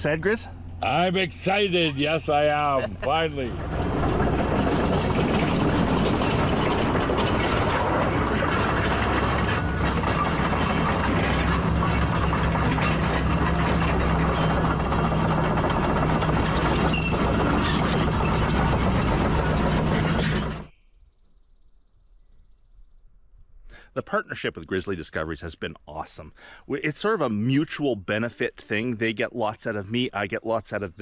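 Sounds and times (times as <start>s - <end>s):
engine droning: 0.0s - 20.7s
steel tracks clanking: 0.0s - 20.7s.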